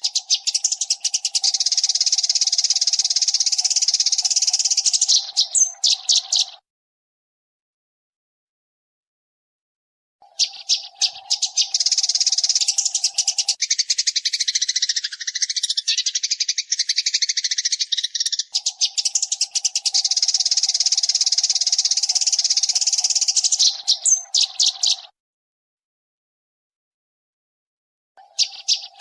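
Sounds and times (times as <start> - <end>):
sparrow chirping rapidly: 0.0 - 6.6, 10.2 - 25.2, 28.2 - 29.0.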